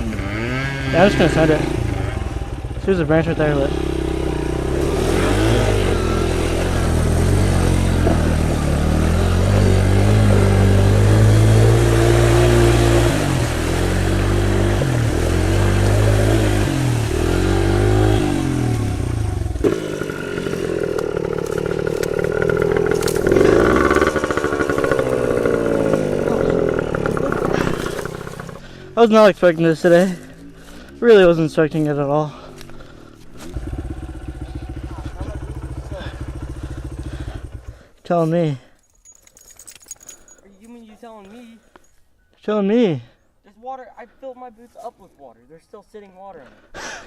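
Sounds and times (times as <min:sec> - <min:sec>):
small motorbike engine revving: 0:00.0 - 0:28.8, 0:33.3 - 0:37.8
engine clattering: 0:04.4 - 0:28.8.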